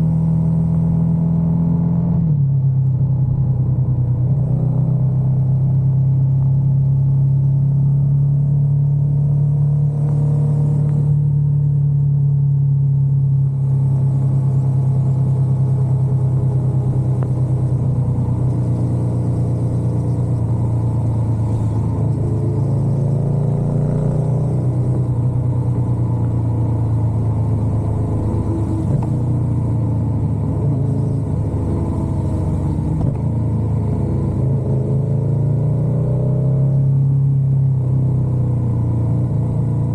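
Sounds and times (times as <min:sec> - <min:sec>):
motorcycle engine running: 0:02.9 - 0:34.7.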